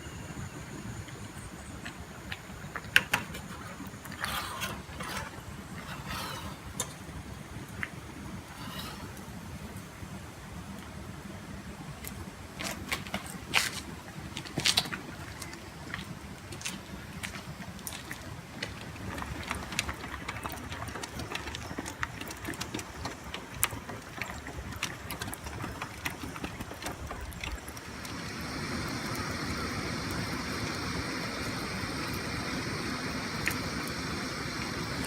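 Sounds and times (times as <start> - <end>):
campfire crackling and popping: 0.7 - 11.2, 11.9 - 35.0
steady hiss: 27.8 - 35.0.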